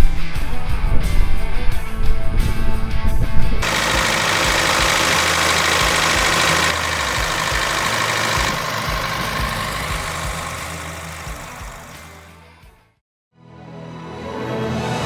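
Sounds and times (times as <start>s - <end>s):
loud hiss: 3.6s - 12.2s
mini excavator diesel engine: 3.6s - 12.4s.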